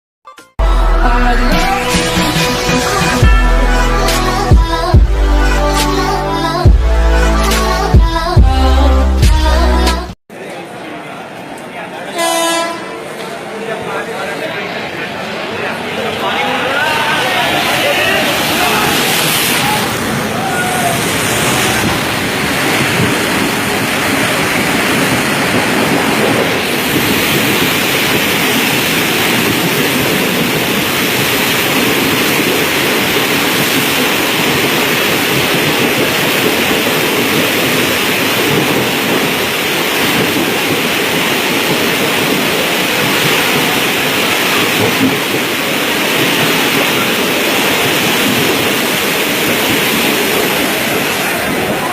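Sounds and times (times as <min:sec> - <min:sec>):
heavy rain pouring: 0:15.2 - 0:51.9.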